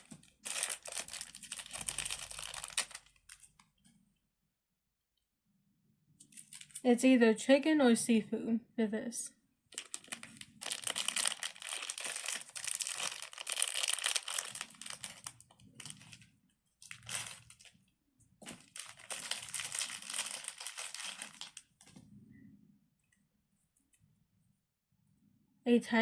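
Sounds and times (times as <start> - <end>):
crinkling and rustling: 0.0 - 4.0, 6.2 - 6.9, 9.7 - 22.2.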